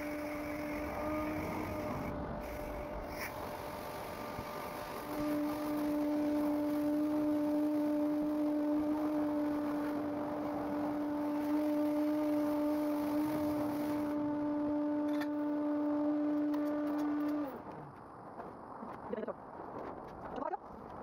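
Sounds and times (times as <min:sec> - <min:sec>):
car wash motor hum: 0:00.0 - 0:17.8.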